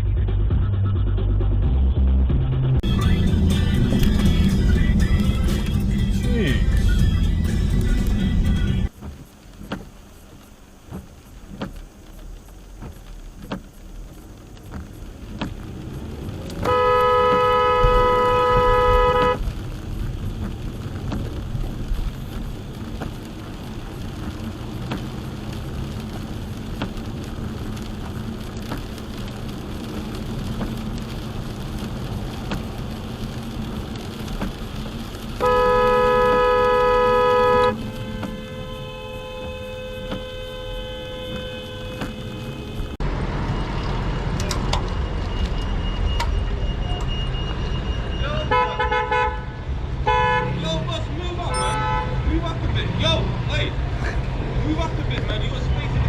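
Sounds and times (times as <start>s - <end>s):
road and engine rumble: 0.0s - 56.0s
vehicle horn blasts: 16.6s - 19.4s, 35.4s - 42.8s, 48.4s - 50.6s, 51.5s - 52.3s.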